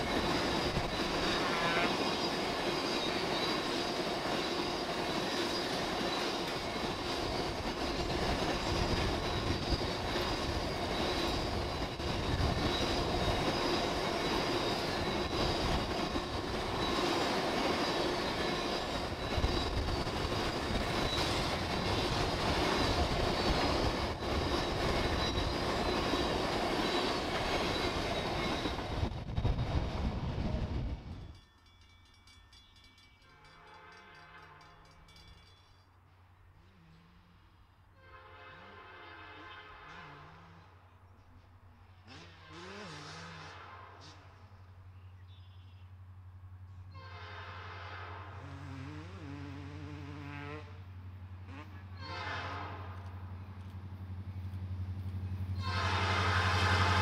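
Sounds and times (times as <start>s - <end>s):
high-pitched wheel squeal: 0.0s - 29.1s
train wheels on rails: 0.0s - 36.8s, 46.6s - 57.0s.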